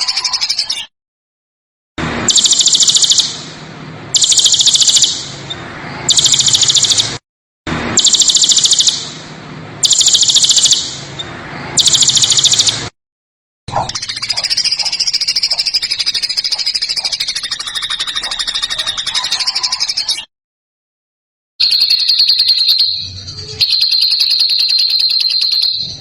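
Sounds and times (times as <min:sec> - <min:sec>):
songbird rattling trill: 0:00.0 - 0:00.8, 0:02.3 - 0:03.4, 0:04.2 - 0:07.1, 0:08.0 - 0:09.1, 0:09.8 - 0:10.9, 0:11.8 - 0:12.8, 0:13.7 - 0:20.2, 0:21.6 - 0:26.0.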